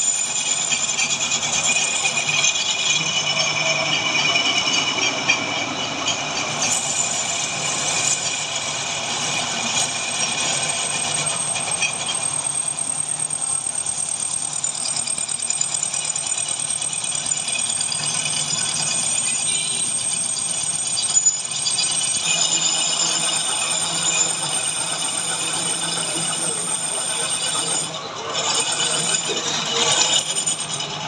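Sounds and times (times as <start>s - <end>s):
thin high whine: 18.5s - 31.0s
lathe rattling and clattering: 21.5s - 31.0s.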